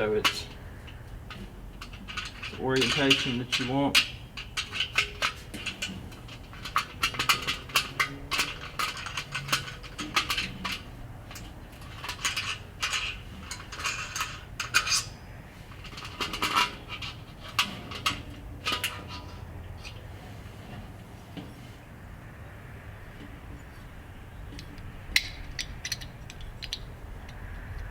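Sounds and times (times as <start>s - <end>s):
metal clicking and scraping: 0.0s - 21.8s, 23.1s - 27.9s.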